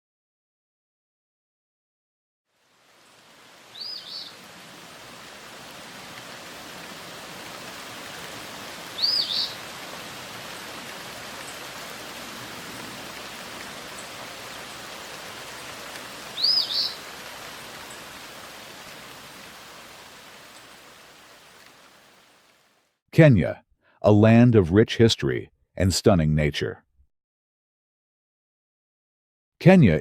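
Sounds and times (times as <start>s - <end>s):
steady watery hiss: 2.6s - 22.8s.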